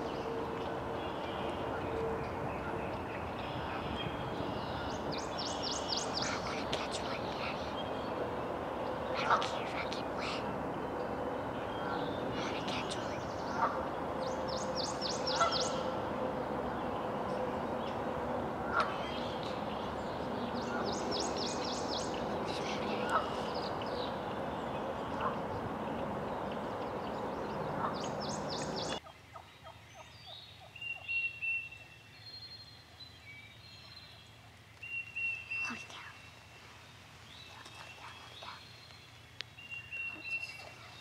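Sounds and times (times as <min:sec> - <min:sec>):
birds rattling calls: 0:00.0 - 0:29.0
thin high bird calls: 0:11.6 - 0:16.0.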